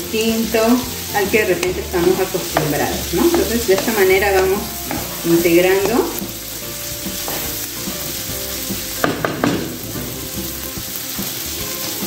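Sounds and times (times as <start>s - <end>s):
food sizzling in a pan: 0.0s - 12.0s
utensil knocking against pan: 1.6s - 6.4s, 9.0s - 10.6s.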